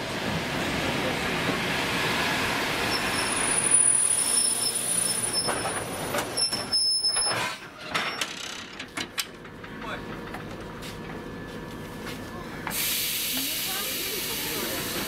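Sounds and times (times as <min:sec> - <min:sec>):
train coaches rolling: 0:00.0 - 0:15.0
high brake squeals: 0:02.9 - 0:07.6.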